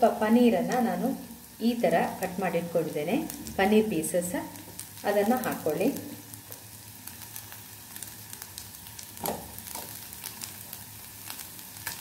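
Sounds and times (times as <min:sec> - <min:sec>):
vegetables sizzling in oil: 0:00.0 - 0:12.0
light crackles: 0:04.4 - 0:12.0
soft thuds into pan: 0:09.2 - 0:09.6.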